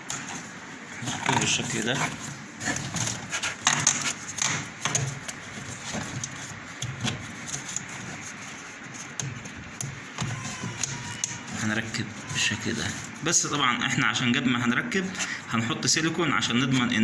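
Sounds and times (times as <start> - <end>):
hose handling clicks and knocks: 1.0 - 8.3.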